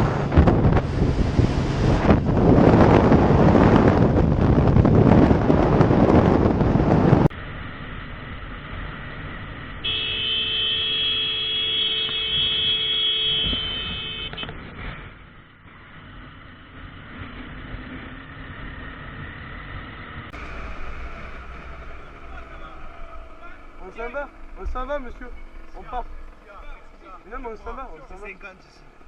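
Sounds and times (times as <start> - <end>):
traffic noise: 0.0 - 29.0
vehicle horn held: 9.8 - 14.5.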